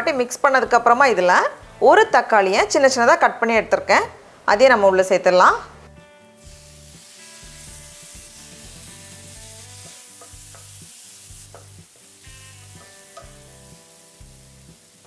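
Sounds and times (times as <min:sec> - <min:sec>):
food sizzling in hot oil: 0:06.2 - 0:15.0
spatula clicking against pan: 0:12.8 - 0:13.4.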